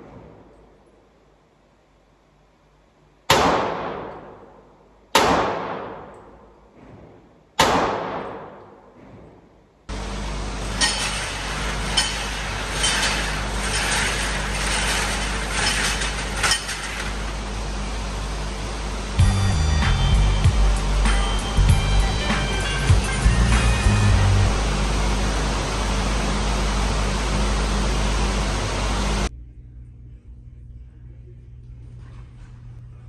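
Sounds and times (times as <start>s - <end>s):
steady rumbling with hiss: 0.0s - 33.0s
echoing handgun shots: 3.3s - 4.6s, 5.2s - 6.6s, 7.6s - 8.9s.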